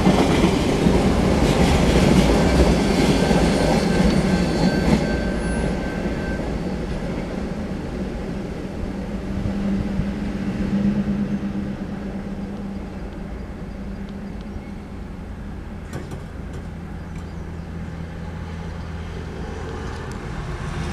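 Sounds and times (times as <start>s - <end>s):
freight train rumbling: 0.0s - 20.9s
sharp clicks of tyres on rails: 15.8s - 17.4s.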